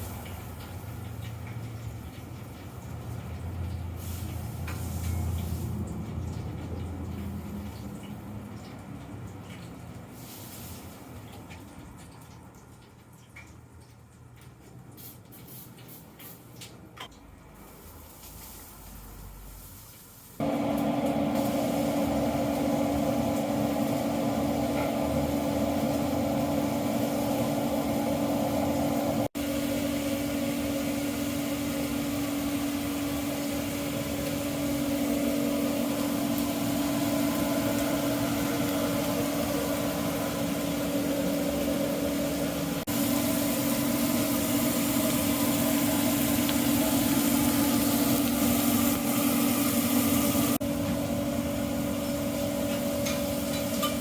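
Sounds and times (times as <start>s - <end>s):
machine humming: 20.4s - 54.0s.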